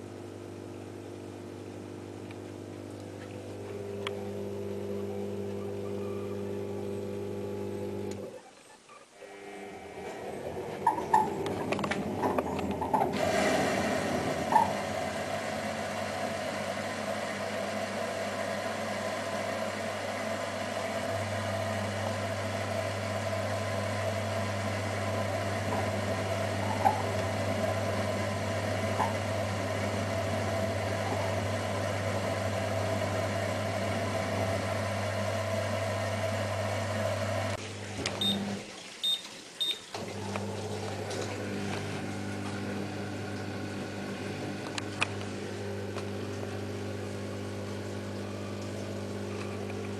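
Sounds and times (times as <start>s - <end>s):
washing machine running: 0.0s - 8.4s, 9.2s - 49.9s
short high beeps: 39.0s - 39.8s.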